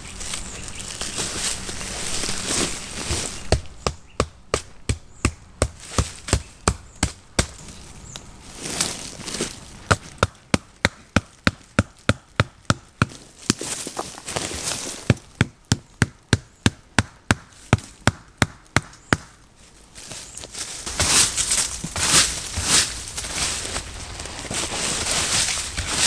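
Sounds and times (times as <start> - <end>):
rustling: 0.0 - 10.4, 13.0 - 15.4, 19.4 - 26.0.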